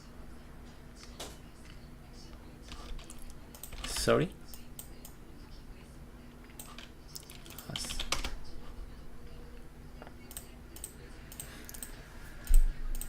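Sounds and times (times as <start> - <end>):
faint steady hum: 0.0 - 13.0
keyboard and mouse clicks: 10.3 - 13.0.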